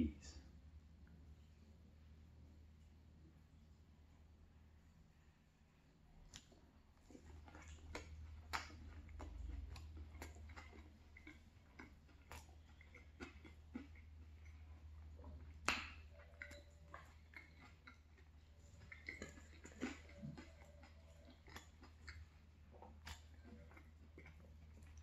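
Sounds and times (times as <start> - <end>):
chewing and wet mouth smacks: 6.2 - 25.0.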